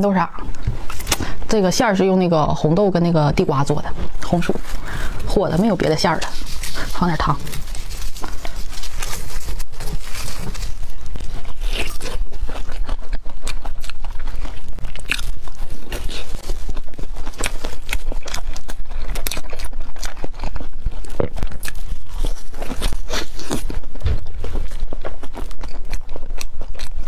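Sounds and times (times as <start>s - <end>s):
crunchy chewing: 3.6s - 27.0s.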